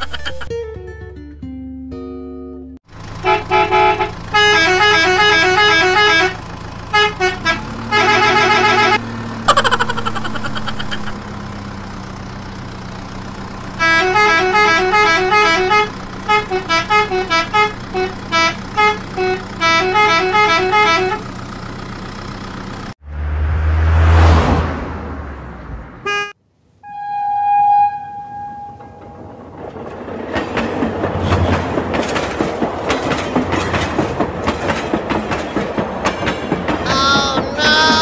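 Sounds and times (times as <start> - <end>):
electronic horn beeps: 3.2 - 9.0, 13.8 - 21.3, 26.0 - 29.2
falling tone: 26.8 - 29.3.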